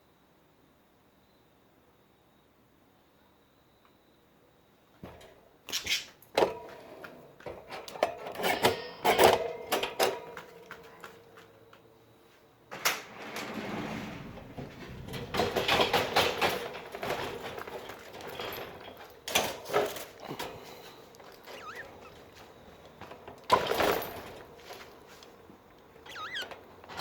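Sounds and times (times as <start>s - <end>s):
birdcage rattling being handled: 14.9s - 25.4s.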